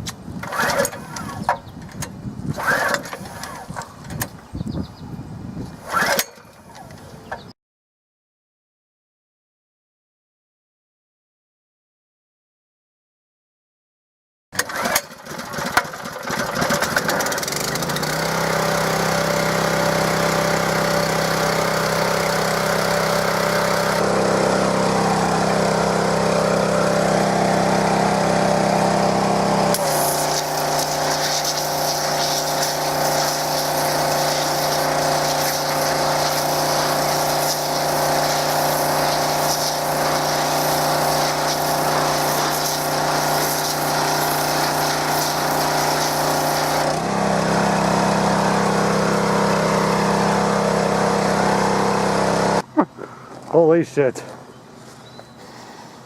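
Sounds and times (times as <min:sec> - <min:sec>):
pressure washer engine running: 0:14.6 - 0:52.9
high-pressure water jet hissing: 0:18.6 - 0:27.1, 0:27.9 - 0:47.0.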